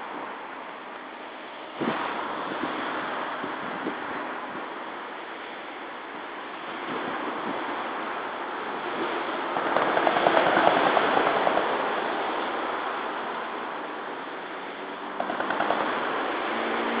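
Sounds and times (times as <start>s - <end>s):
road traffic on a bridge: 0.0s - 17.0s
wind on microphone: 1.7s - 17.0s
quick ticking: 15.2s - 16.0s.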